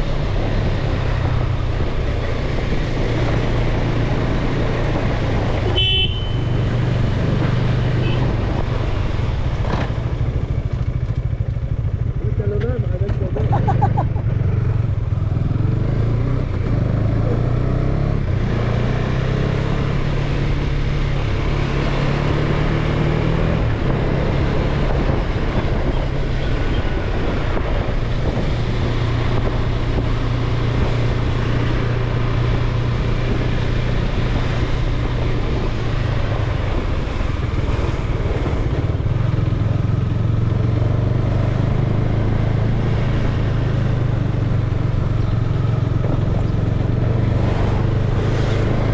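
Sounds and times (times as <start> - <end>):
motorcycle engine running: 0.0 - 48.9
road noise: 0.0 - 48.9
wind noise: 13.3 - 48.9.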